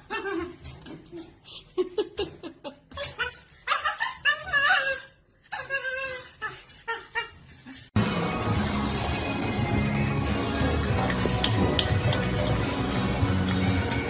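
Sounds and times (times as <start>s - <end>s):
dog whining and yipping: 2.9s - 7.6s
music: 8.0s - 14.0s.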